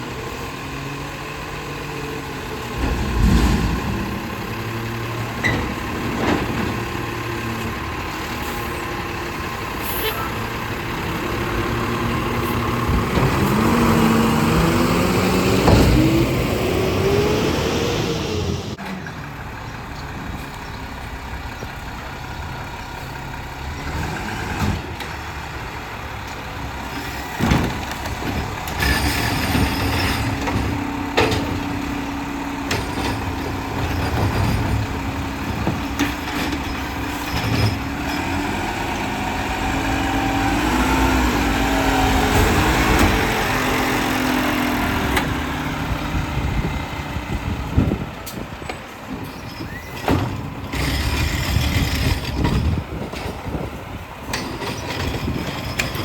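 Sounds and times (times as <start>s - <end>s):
garbage truck engine running: 0.0s - 56.0s
loud clunks: 2.7s - 7.1s, 15.5s - 16.5s.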